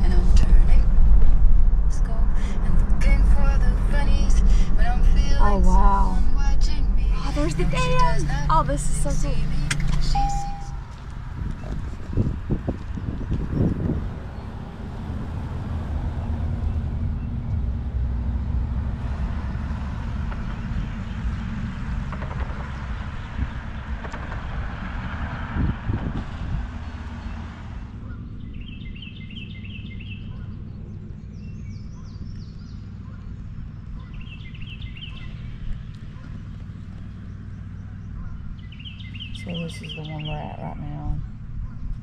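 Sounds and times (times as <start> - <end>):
car road and engine noise: 0.0 - 42.0
birds chirping: 5.5 - 18.1, 19.4 - 24.8, 26.7 - 42.0.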